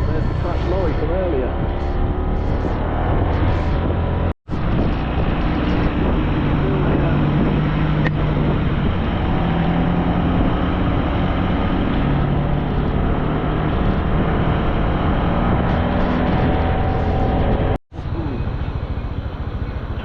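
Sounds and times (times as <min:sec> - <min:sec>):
wind rushing over microphone: 0:00.0 - 0:17.8
scooter engine running: 0:18.0 - 0:20.0.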